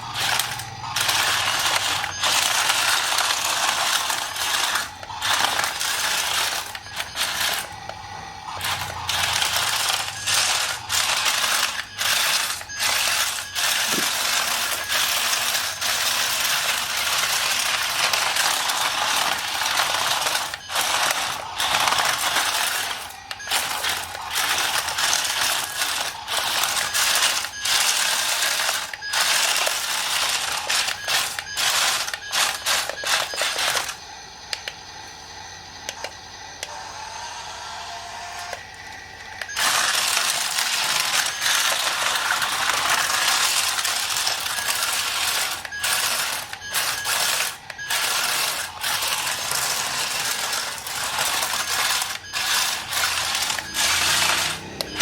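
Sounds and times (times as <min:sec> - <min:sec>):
rapid mechanical clicking and rattling: 0:00.0 - 0:34.8, 0:39.2 - 0:55.0.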